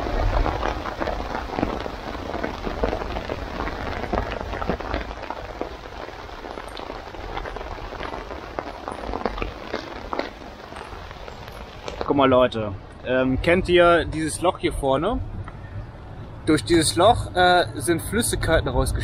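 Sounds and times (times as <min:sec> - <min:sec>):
heavy rain on a tarp: 0:00.0 - 0:14.4.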